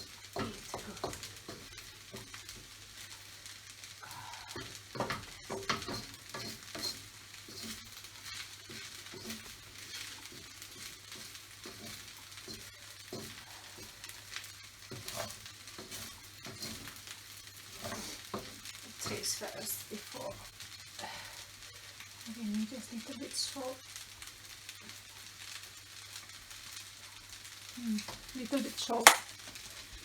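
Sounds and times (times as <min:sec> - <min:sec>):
rice sizzling in a pan: 0:00.0 - 0:30.0
utensil scraping and knocking pan: 0:00.3 - 0:02.4, 0:04.5 - 0:14.0, 0:14.8 - 0:19.4.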